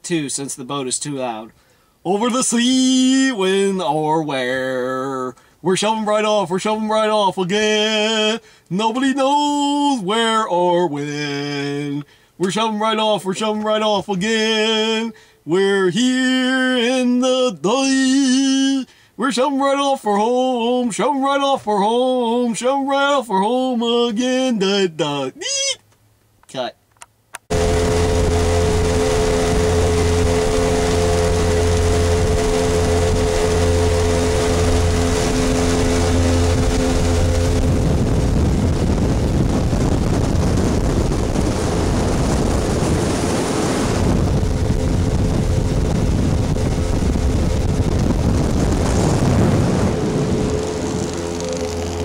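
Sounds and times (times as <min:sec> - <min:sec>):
motorboat engine drone: 0:04.8 - 0:08.6, 0:11.0 - 0:19.1, 0:27.5 - 0:52.0
rush of wind and water: 0:27.5 - 0:52.0.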